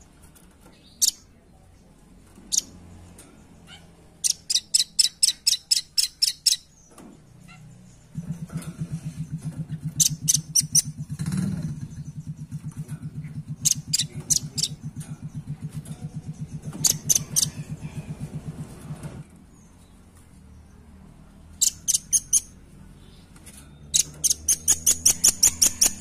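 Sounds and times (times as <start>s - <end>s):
low pulsing hum: 7.8s - 19.2s.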